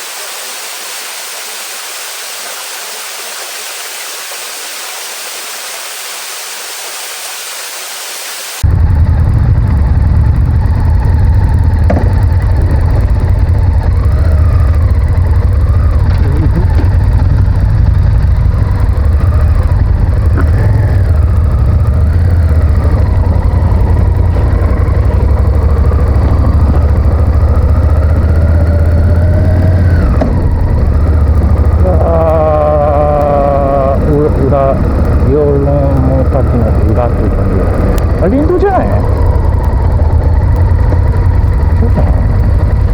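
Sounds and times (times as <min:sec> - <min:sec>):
motorcycle engine revving: 0:08.6 - 0:42.9
wind rumble on microphone: 0:08.6 - 0:42.9.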